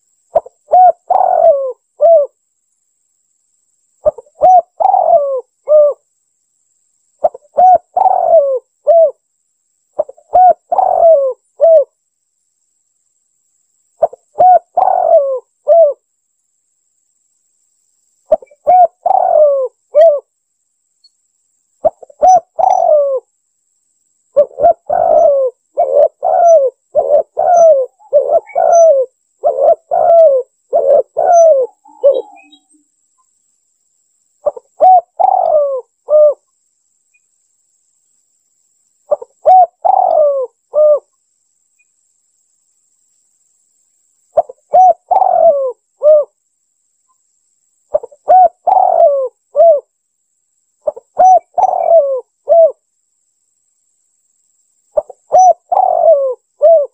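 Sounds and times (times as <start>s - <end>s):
dove cooing: 0.3s - 2.4s, 4.0s - 6.0s, 7.2s - 9.2s, 10.0s - 11.9s, 14.0s - 16.0s, 18.3s - 20.3s, 21.8s - 23.3s, 24.4s - 32.7s, 34.4s - 36.4s, 39.1s - 41.1s, 44.4s - 46.4s, 47.9s - 49.9s, 50.8s - 52.8s, 55.0s - 56.9s.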